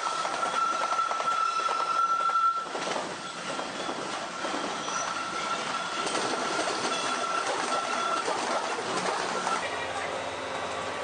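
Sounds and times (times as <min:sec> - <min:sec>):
train wheels squealing: 0:00.0 - 0:08.6
electric train rolling past: 0:00.0 - 0:11.0.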